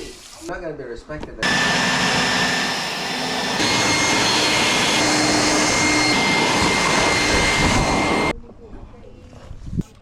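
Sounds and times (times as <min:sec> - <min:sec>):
bike wash equipment running: 0:01.4 - 0:08.3
high whine: 0:01.4 - 0:08.3.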